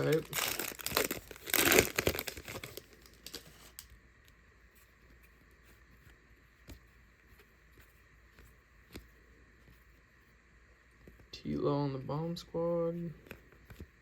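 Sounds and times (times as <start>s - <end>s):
plastic wrapper crinkling and tearing: 0.0s - 3.9s.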